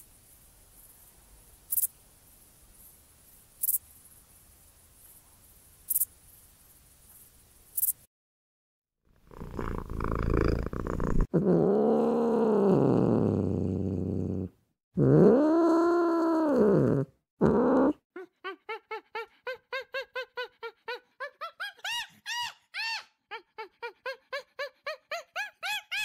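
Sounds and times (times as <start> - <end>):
animal calls: 18.2 - 26.0.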